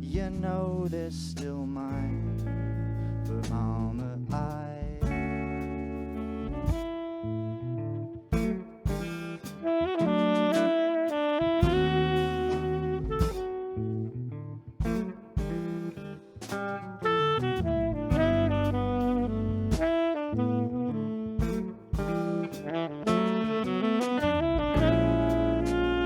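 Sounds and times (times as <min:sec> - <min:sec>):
drums: 0:00.0 - 0:07.2, 0:08.3 - 0:13.8, 0:14.8 - 0:20.4, 0:21.3 - 0:26.0
bass: 0:00.0 - 0:26.0
electric guitar: 0:00.0 - 0:26.0
saxophone melody: 0:05.0 - 0:16.0, 0:16.6 - 0:26.0.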